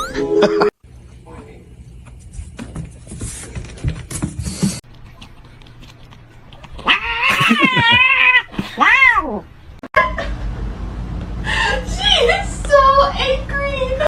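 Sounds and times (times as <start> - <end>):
rustling and clicking: 2.0 - 6.9
cat yowling: 6.7 - 9.5.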